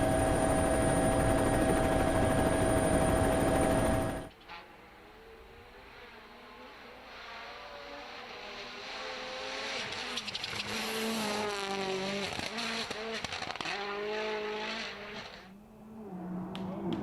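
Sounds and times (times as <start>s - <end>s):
rally car engine revving: 5.2s - 17.0s.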